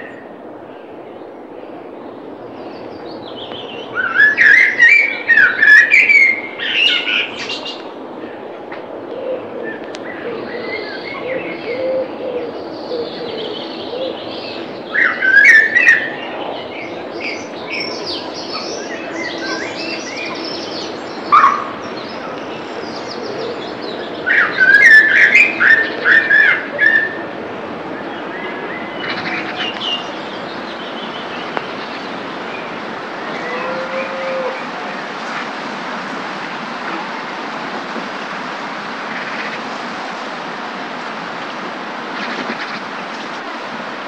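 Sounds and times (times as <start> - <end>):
birds singing: 0.0 - 8.4, 9.1 - 35.2
background ambience: 0.0 - 44.0.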